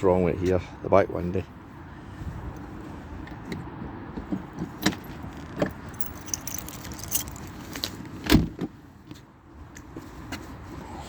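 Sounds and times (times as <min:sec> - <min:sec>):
car keys jangling: 0:04.8 - 0:08.0.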